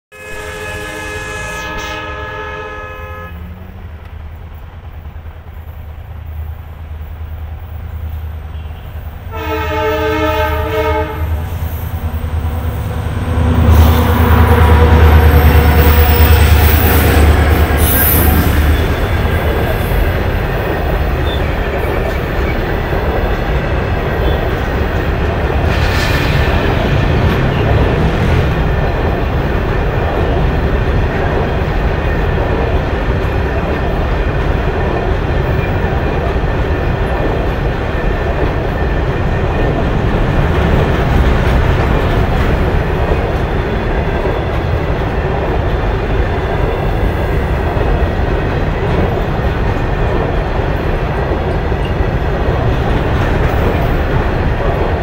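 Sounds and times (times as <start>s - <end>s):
locomotive horn blasts: 0.1s - 3.7s, 8.5s - 11.4s.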